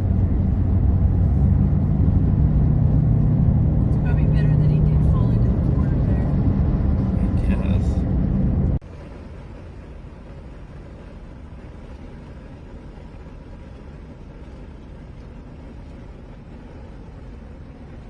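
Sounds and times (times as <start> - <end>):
low rumble of vehicle noise: 0.0 - 18.0.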